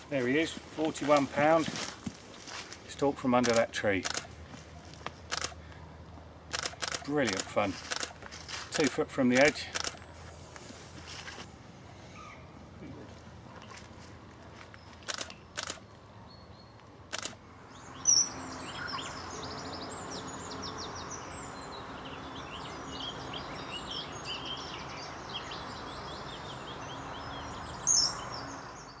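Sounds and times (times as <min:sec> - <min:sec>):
steady outdoor hiss: 0:00.0 - 0:29.0
camera shutter clicking: 0:03.4 - 0:04.3, 0:05.3 - 0:05.6, 0:06.5 - 0:08.2, 0:09.3 - 0:10.0, 0:15.0 - 0:15.8, 0:17.1 - 0:17.4
small birds chirping: 0:14.6 - 0:29.0.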